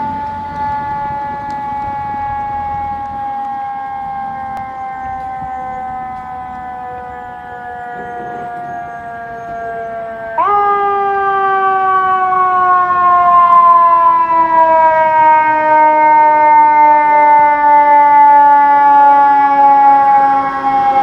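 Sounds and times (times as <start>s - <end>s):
fire truck siren wailing: 0.0s - 21.0s.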